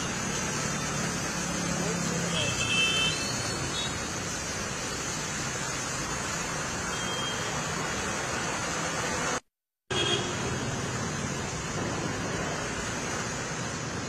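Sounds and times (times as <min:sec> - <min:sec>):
heavy rain hiss: 0:00.0 - 0:14.0
traffic on wet road: 0:00.0 - 0:14.0.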